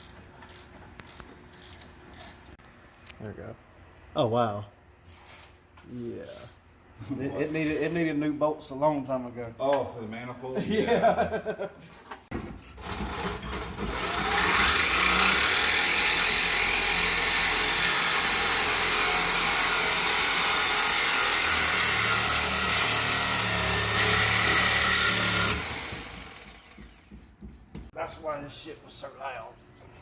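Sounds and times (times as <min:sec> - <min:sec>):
handheld power tool running: 0:12.8 - 0:27.2.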